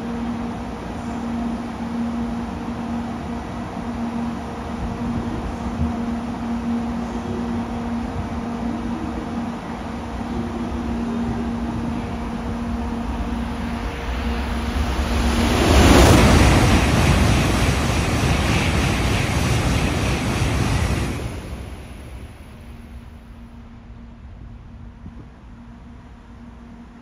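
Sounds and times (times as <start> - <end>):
high-speed train rushing past: 0.0 - 27.0.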